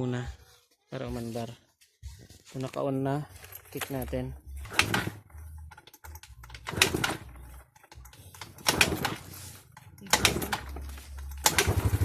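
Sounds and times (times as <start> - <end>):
scooter engine kick-start: 4.6 - 12.0.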